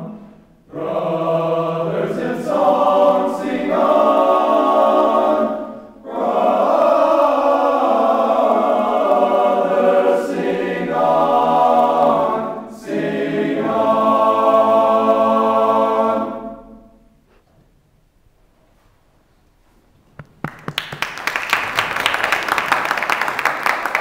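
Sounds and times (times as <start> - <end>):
men singing a hymn a cappella: 0.7 - 16.6.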